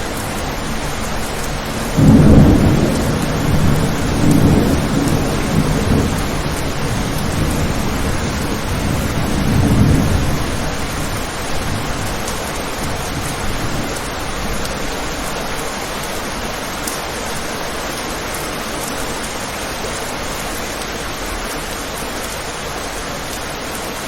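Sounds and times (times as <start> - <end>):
thunder rumbling: 0.0 - 16.5
steady rain: 0.0 - 24.0.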